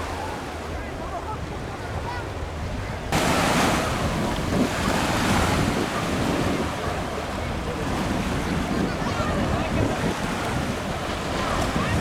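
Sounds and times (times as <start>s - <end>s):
wave wash: 0.0s - 12.0s
wave breaking on beach: 3.1s - 12.0s.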